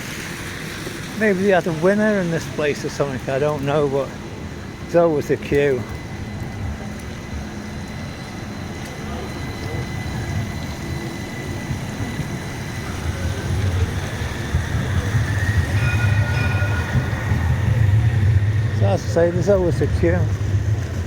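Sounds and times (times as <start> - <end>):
low traffic rumble: 0.0 - 21.0
rain hissing on street: 0.0 - 21.0.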